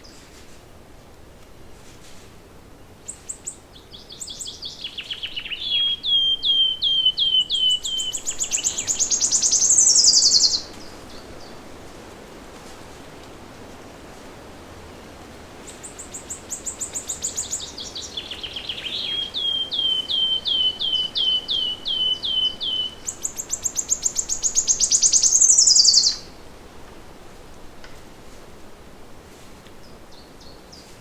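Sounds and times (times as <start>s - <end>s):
songbird singing trills: 3.1s - 11.6s, 15.7s - 26.3s.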